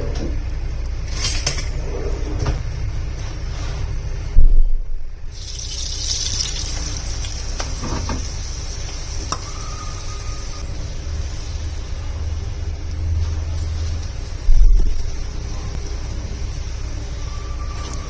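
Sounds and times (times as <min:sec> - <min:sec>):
water running from kitchen tap: 0:05.3 - 0:10.6.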